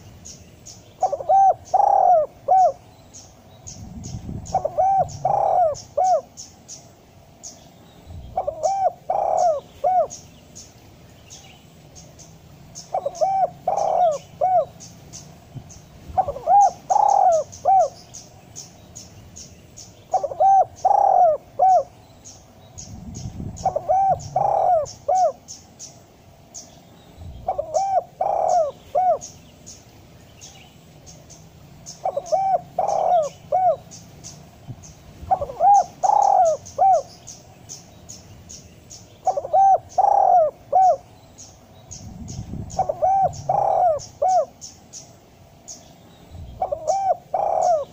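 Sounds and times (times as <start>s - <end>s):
dove cooing: 1.0s - 2.8s, 3.8s - 6.5s, 8.2s - 10.3s, 12.8s - 15.0s, 16.1s - 18.1s, 20.1s - 21.9s, 22.9s - 25.5s, 27.3s - 29.4s, 31.8s - 34.3s, 35.2s - 37.4s, 39.2s - 41.1s, 42.0s - 44.7s, 46.4s - 47.9s.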